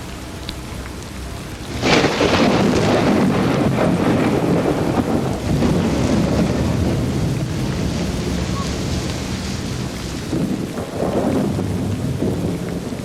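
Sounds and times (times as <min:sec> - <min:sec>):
steady rainfall: 0:00.0 - 0:13.0
thunderclap with long rumble: 0:00.0 - 0:13.0.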